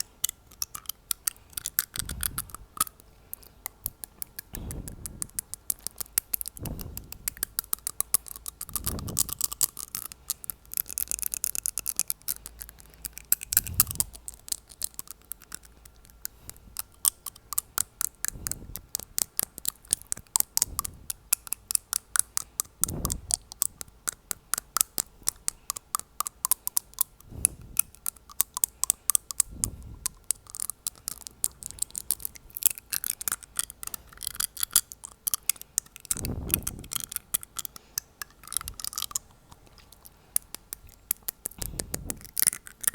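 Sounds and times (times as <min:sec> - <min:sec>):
tapping on teeth: 0:00.0 - 0:42.9
breath puffs on microphone: 0:06.6 - 0:07.3.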